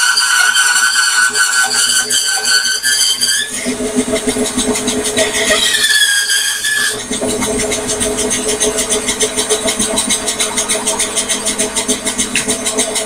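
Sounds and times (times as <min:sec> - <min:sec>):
bandsaw humming with pulsing: 0:00.0 - 0:13.0
high whine: 0:06.6 - 0:13.0.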